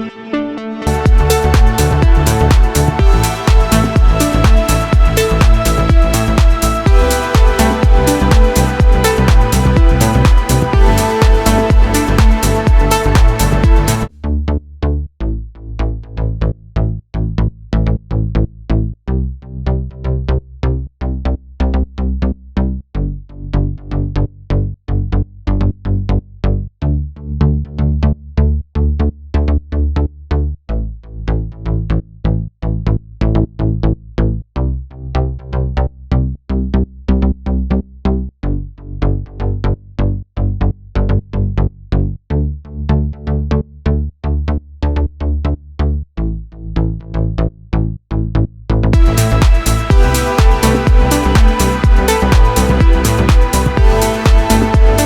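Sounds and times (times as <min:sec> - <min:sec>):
house music loop: 0:00.0 - 0:14.1, 0:49.0 - 0:55.0.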